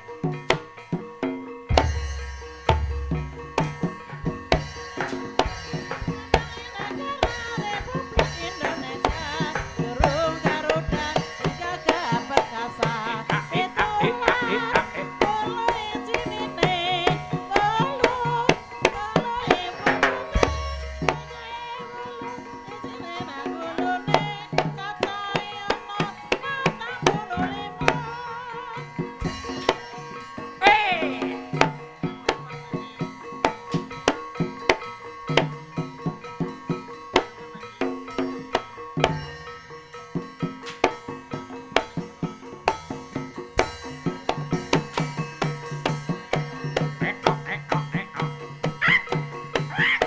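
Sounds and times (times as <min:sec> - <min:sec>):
hand drum strokes: 0:00.0 - 0:39.5, 0:40.1 - 0:50.0
ringing metal percussion: 0:00.0 - 0:50.0
wavering melody line: 0:13.5 - 0:24.4.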